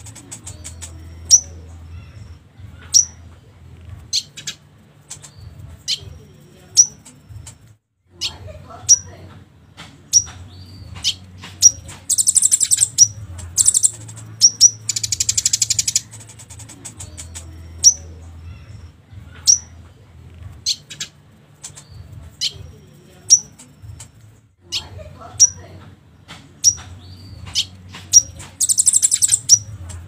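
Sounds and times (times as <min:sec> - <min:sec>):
songbird chirps: 0:00.0 - 0:30.0
bird rattling trills: 0:11.0 - 0:17.5, 0:27.6 - 0:29.7.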